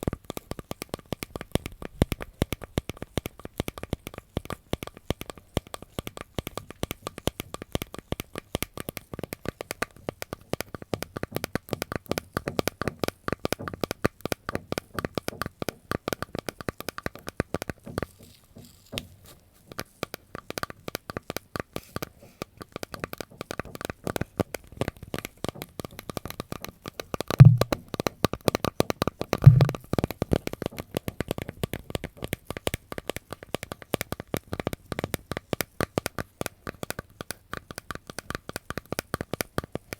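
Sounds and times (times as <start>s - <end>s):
crisp crackling and tapping: 0.0s - 27.8s, 28.4s - 39.9s
dull low thumps: 27.4s - 27.8s, 29.4s - 29.8s.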